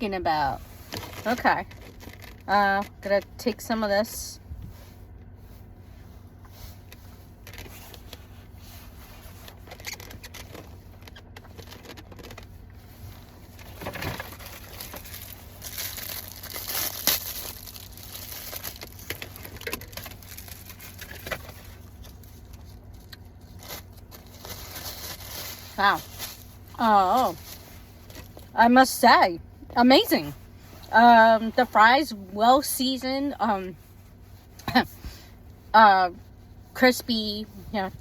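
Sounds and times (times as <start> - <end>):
food crinkles and clicks: 13.6 - 25.4.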